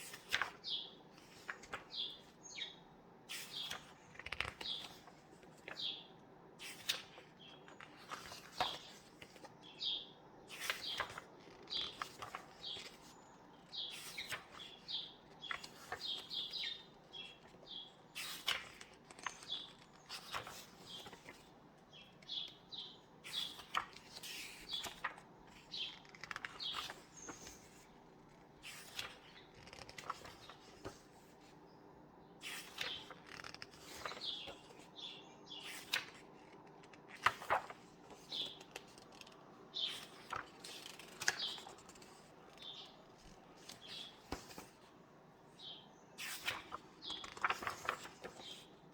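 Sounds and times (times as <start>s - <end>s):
paper pages rustling: 0.0s - 5.9s, 6.6s - 9.6s, 10.5s - 31.6s, 32.4s - 45.0s, 46.2s - 48.9s
small birds chirping: 5.7s - 27.9s, 31.7s - 36.5s, 37.2s - 44.8s, 45.5s - 48.8s.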